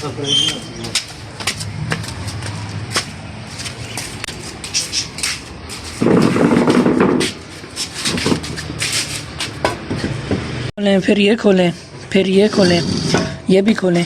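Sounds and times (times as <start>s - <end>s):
loud rough noise: 6.0s - 7.3s, 12.2s - 13.5s.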